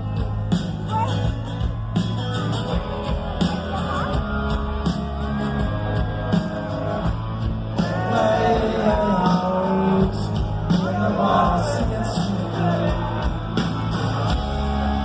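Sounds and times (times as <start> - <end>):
guitar: 0.0 - 15.0
steady drum beat: 0.0 - 15.0
person singing: 7.8 - 13.3.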